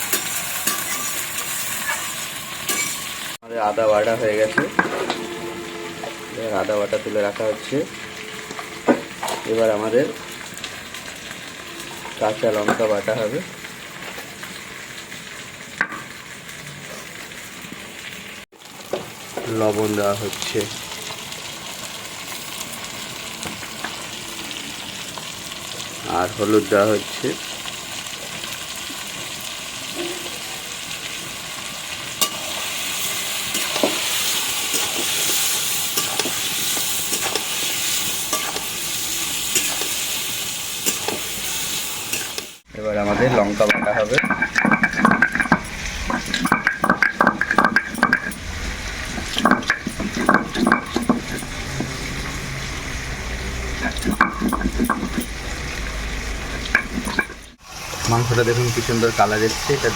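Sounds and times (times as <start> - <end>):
chicken frying in hot oil: 0.0 - 4.9, 6.4 - 59.9
food sizzling in a pan: 0.0 - 59.9
spatula scraping: 43.2 - 57.6.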